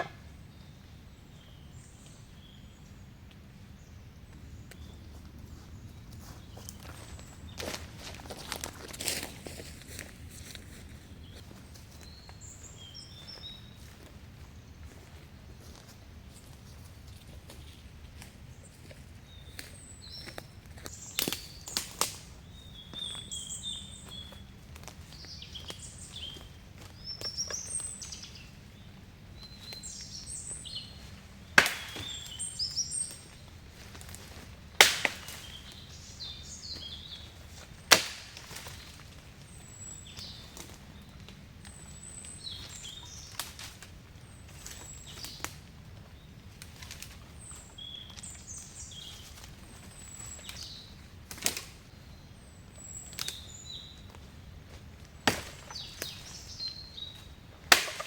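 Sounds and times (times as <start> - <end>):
forest birds chirping: 0.0 - 58.0.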